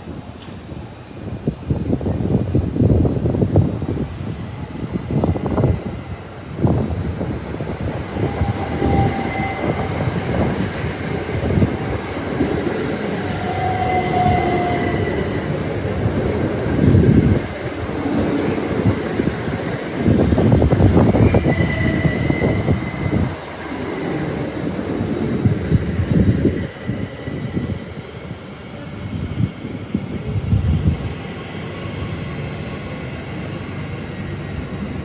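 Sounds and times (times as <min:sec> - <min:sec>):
train wheels rumbling on track: 0:00.0 - 0:35.0
wheels squealing: 0:08.0 - 0:18.9.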